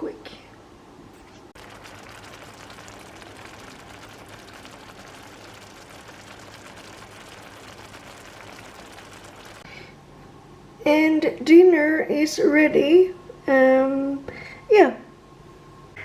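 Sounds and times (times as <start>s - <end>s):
food crackling on stove: 1.2s - 9.7s.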